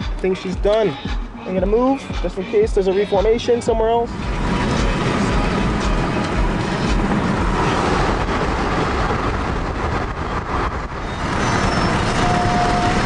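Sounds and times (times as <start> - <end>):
vehicle road and engine noise: 0.0 - 13.0.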